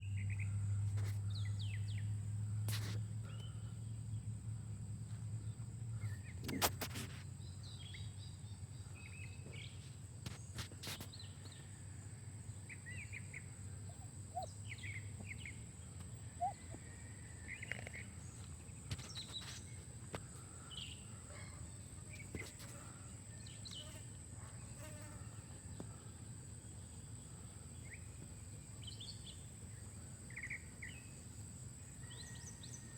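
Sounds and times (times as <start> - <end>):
steady low hum: 0.0 - 32.9
bird chirps: 12.7 - 19.8.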